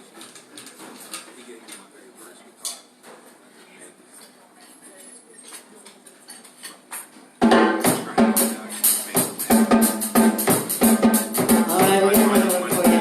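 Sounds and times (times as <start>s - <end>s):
live band music: 7.4s - 13.0s
sharp percussion hits: 7.4s - 13.0s.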